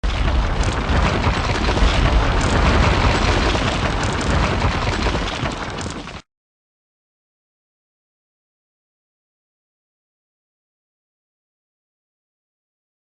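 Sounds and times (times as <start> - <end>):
explosion-like crash and rumble: 0.0 - 6.2.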